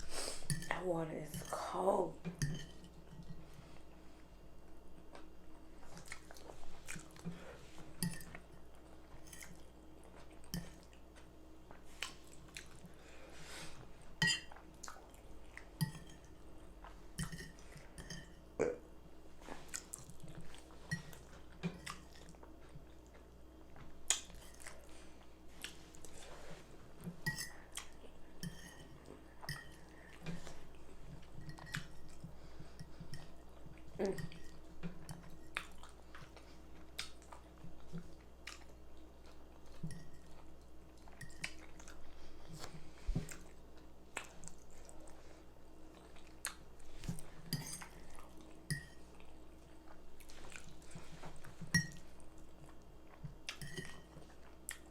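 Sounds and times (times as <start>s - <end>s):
close chewing with mouth smacks: 5.1s - 7.4s, 19.5s - 26.2s, 35.1s - 45.2s, 45.9s - 51.6s, 52.3s - 54.9s.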